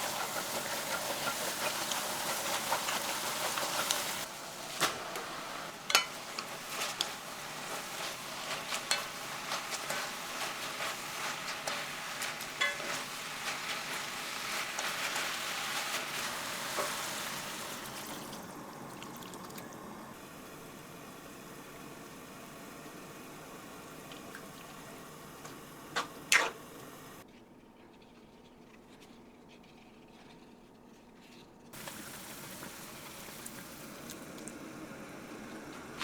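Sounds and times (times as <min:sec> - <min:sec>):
food sizzling in a frying pan: 0:00.0 - 0:27.2, 0:31.8 - 0:36.0
utensil tapping: 0:05.9 - 0:07.1.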